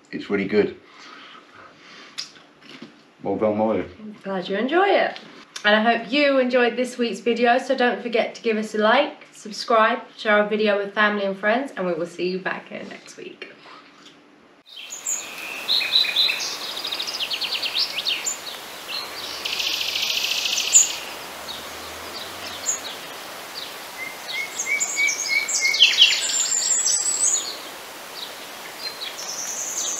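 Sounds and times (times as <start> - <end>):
dense buzzy bird trill: 14.7 - 29.9
songbirds singing: 14.7 - 29.9.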